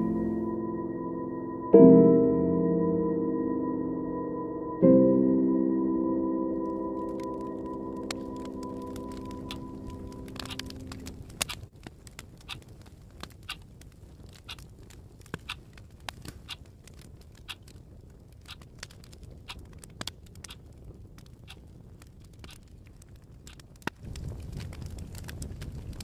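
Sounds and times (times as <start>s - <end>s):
wood fire crackling: 6.6s - 26.0s.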